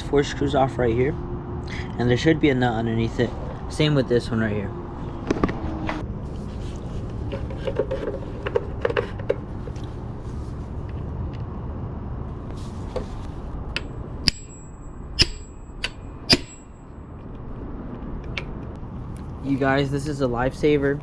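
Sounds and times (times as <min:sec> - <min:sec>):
tools clicking and tapping: 0:13.7 - 0:16.8
hammer striking impact driver: 0:13.8 - 0:16.8.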